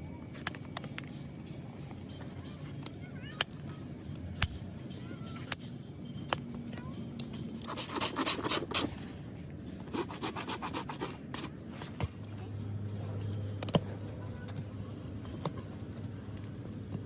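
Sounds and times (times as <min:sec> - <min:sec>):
tool scraping horse hoof: 0:07.6 - 0:09.0, 0:09.8 - 0:12.0.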